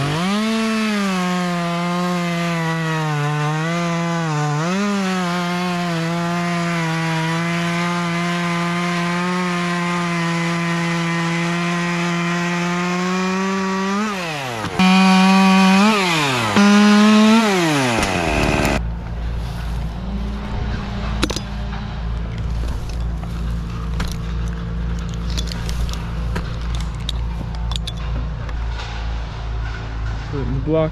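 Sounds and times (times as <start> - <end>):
chainsaw revving and idling: 0.0 - 18.8.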